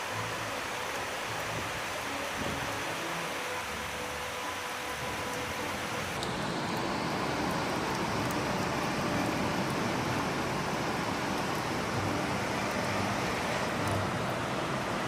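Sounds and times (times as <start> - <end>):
heavy rain hissing: 0.0 - 15.0
faint raindrop ticks: 4.3 - 15.0.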